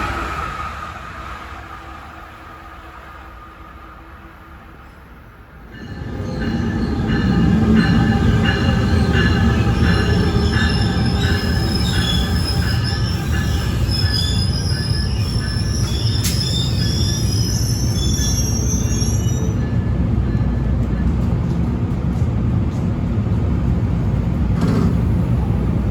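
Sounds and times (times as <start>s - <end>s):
train wheels rushing on rail: 0.0s - 25.9s
wheels squealing: 6.2s - 19.8s.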